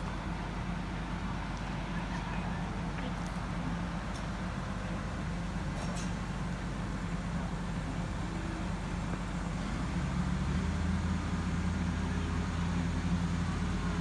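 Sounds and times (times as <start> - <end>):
vehicle engine droning: 7.1 - 14.0.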